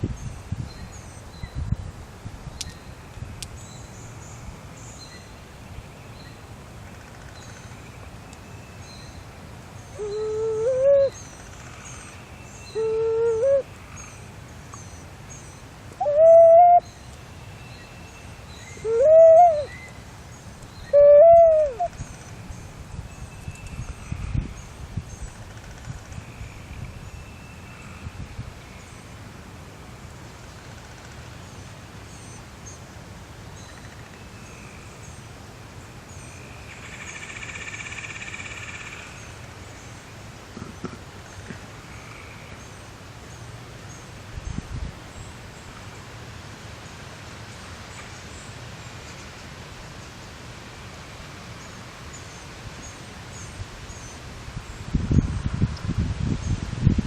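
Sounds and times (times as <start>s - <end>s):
bird whistled hoot call: 10.0s - 11.3s, 12.6s - 13.7s, 16.0s - 16.9s, 18.6s - 19.9s, 20.8s - 22.0s.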